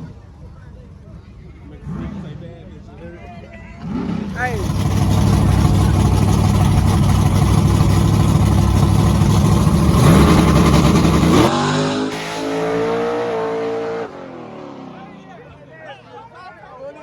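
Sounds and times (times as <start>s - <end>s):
car engine revving high: 3.8s - 15.1s.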